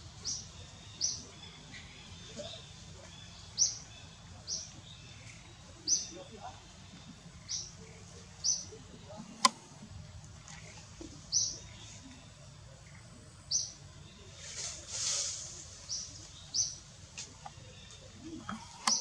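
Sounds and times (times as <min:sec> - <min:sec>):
small bird chirping: 0:00.2 - 0:09.2, 0:15.8 - 0:19.0.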